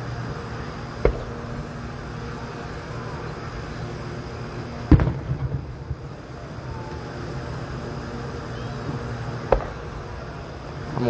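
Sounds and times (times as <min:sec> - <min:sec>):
steady low rumble: 0:00.0 - 0:11.0
distant fireworks bangs: 0:00.9 - 0:02.3, 0:04.7 - 0:06.2, 0:08.9 - 0:10.4.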